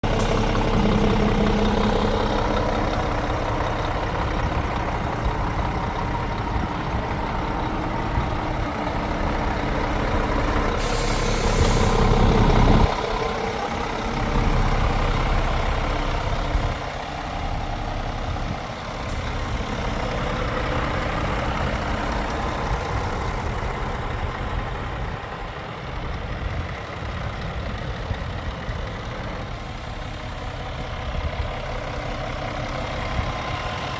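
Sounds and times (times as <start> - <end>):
truck diesel engine running: 0.0 - 33.9
compressed air hiss: 10.8 - 12.5.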